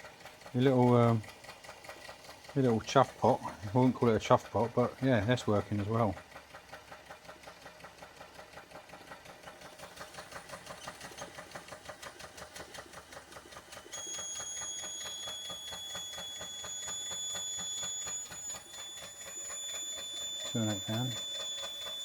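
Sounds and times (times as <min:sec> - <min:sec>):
model steam engine ticking: 0:00.0 - 0:22.0
high-pitched steam whistle: 0:13.7 - 0:22.0.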